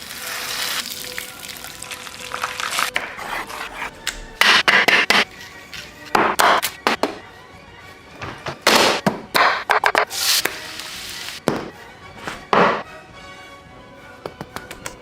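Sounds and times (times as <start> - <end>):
butter sizzling in a pan: 0.0 - 2.9, 10.1 - 11.4
background music: 0.0 - 15.0.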